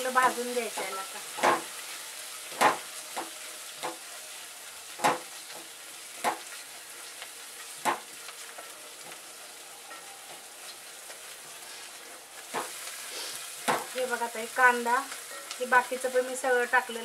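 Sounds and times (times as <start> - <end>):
onions sizzling in a pot: 0.0 - 17.0
spatula striking a pot: 0.8 - 1.7, 2.6 - 4.0.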